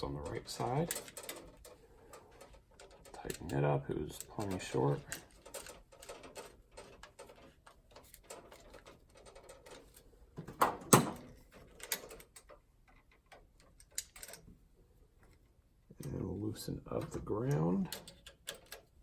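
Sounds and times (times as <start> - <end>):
screwdriver and wires clicking: 17.0 - 19.0.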